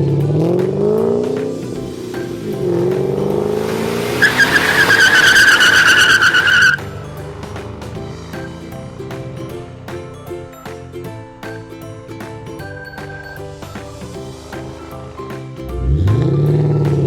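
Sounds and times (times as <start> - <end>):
car engine revving: 0.0 - 8.6
light background music: 0.0 - 17.0
tires squealing: 2.1 - 8.7.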